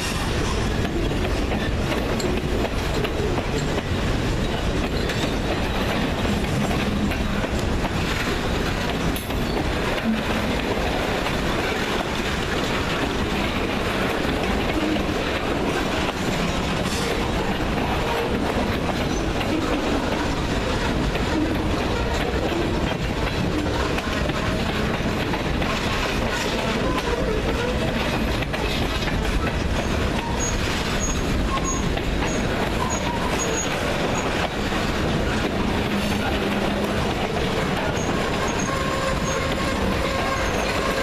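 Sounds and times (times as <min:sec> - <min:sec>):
train wheels rumbling on rails: 0:00.0 - 0:41.0
high wheel squeals: 0:29.5 - 0:34.4, 0:37.8 - 0:41.0.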